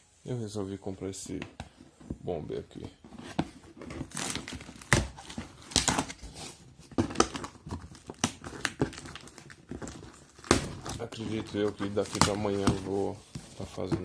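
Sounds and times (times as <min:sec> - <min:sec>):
packaging crinkling and rustling: 0:02.5 - 0:14.0.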